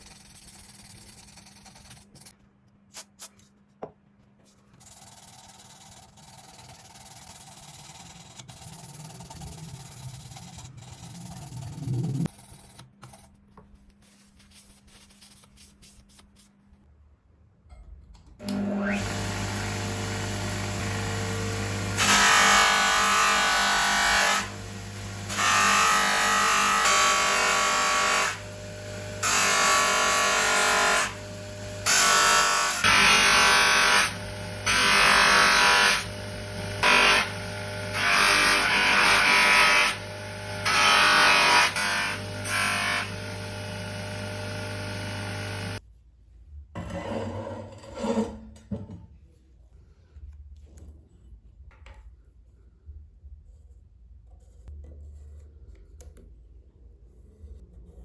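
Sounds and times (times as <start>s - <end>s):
metal rasping against grinder: 18.4s - 45.8s
power tool motor humming: 18.4s - 45.8s.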